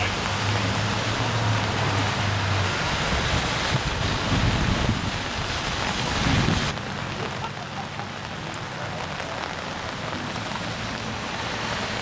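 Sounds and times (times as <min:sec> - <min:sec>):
steady rain: 0:00.0 - 0:12.0
wind buffeting microphone: 0:00.4 - 0:06.8.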